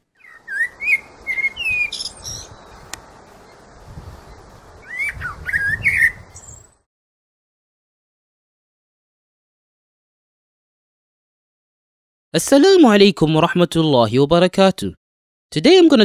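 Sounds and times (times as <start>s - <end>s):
birds chirping: 0.0s - 6.9s
steady rushing hiss: 0.6s - 5.5s.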